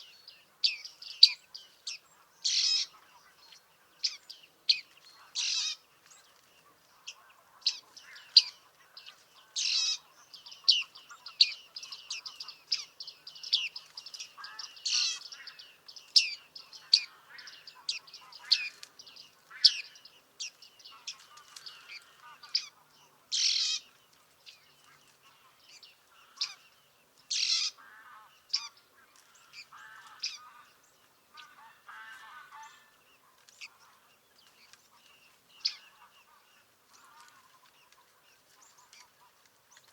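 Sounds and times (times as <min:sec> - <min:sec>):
high bird calls: 0:00.6 - 0:39.9.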